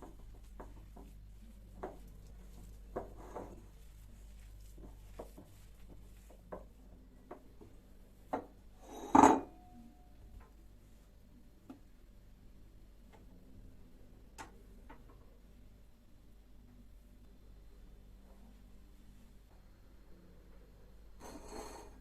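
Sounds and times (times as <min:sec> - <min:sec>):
objects knocking and tapping: 0:00.0 - 0:01.2.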